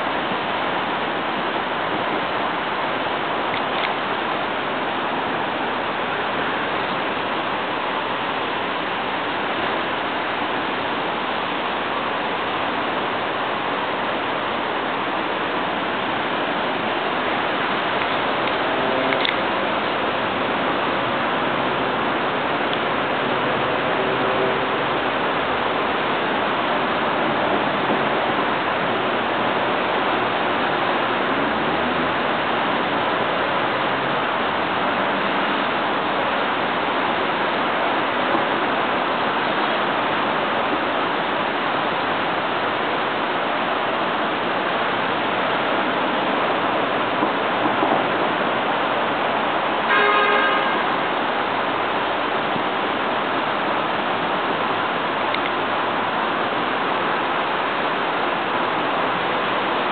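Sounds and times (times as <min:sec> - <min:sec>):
rain hissing: 0:00.0 - 0:59.9.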